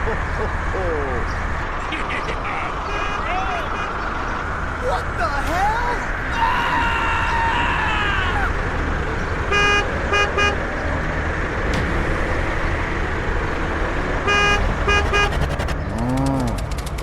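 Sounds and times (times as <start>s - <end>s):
engine running: 0.0s - 17.0s
vehicle horn beeps: 9.5s - 10.7s, 14.2s - 15.7s.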